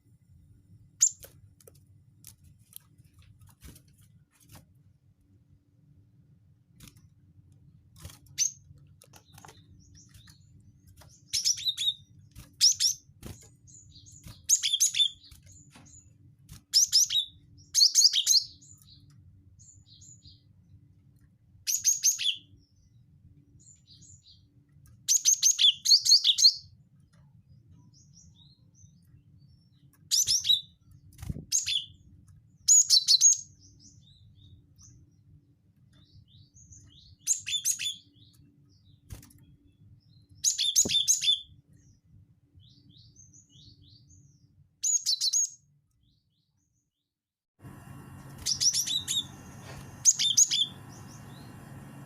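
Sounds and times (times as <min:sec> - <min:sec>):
bird chattering song: 0:01.0 - 0:01.3, 0:09.2 - 0:13.0, 0:13.7 - 0:16.1, 0:16.7 - 0:20.4, 0:21.7 - 0:22.6, 0:25.1 - 0:26.7, 0:31.5 - 0:32.0, 0:32.7 - 0:35.0, 0:36.0 - 0:38.4, 0:40.2 - 0:41.6, 0:48.1 - 0:52.0
soft bird calls: 0:09.2 - 0:20.5, 0:47.7 - 0:52.0
faint low hum: 0:47.6 - 0:52.0.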